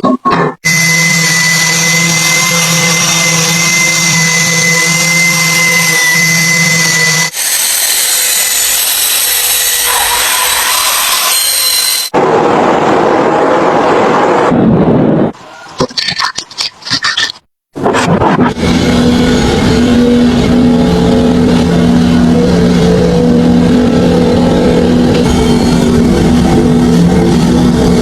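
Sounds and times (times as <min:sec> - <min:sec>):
power tool motor whine: 0:00.6 - 0:12.1, 0:18.5 - 0:28.0
power tool grinding rush: 0:00.7 - 0:12.1, 0:18.5 - 0:28.0.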